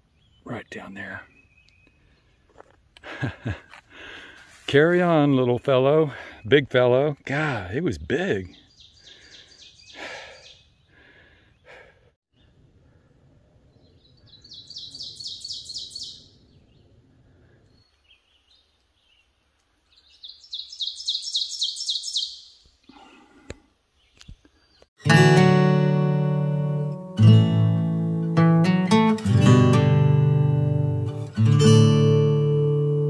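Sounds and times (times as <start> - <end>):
songbird singing: 0.0 - 2.8, 4.8 - 12.7, 13.4 - 24.9.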